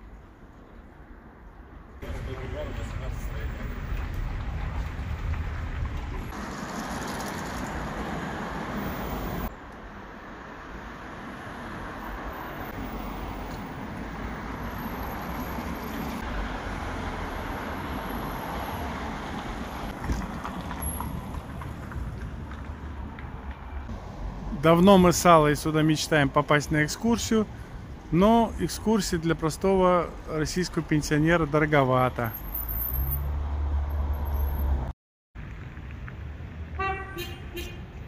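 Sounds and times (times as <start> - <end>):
passing cars rumble and hiss: 0.0 - 28.7.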